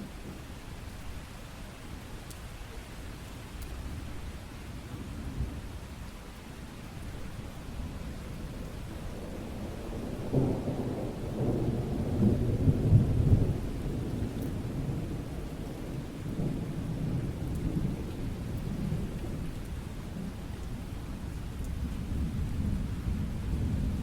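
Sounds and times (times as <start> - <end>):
steady rain: 0.0 - 24.0
rolling thunder: 9.1 - 19.5.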